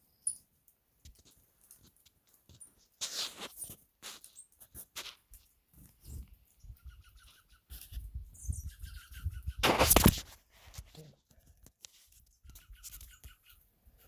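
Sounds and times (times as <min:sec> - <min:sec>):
small birds chirping: 0:00.0 - 0:10.2, 0:10.8 - 0:14.0
loud rustle: 0:09.6 - 0:10.9.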